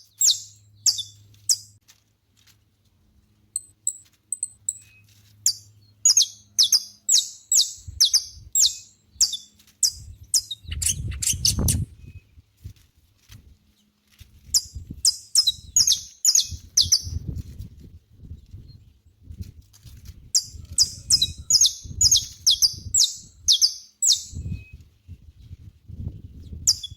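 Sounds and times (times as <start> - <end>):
finch singing high chirps: 0.0 - 1.8, 3.6 - 12.3, 14.5 - 17.3, 20.3 - 24.8, 26.4 - 26.9.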